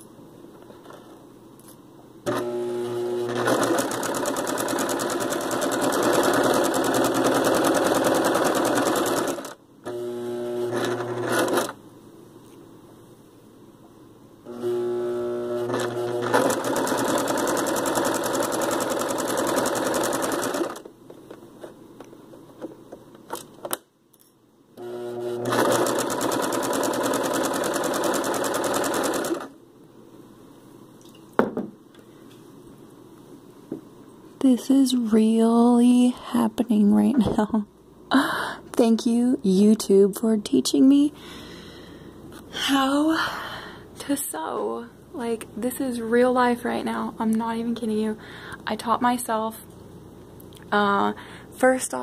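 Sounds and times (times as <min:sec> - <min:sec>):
sewing machine stitching: 0:02.3 - 0:11.8, 0:14.5 - 0:20.9, 0:24.8 - 0:29.6.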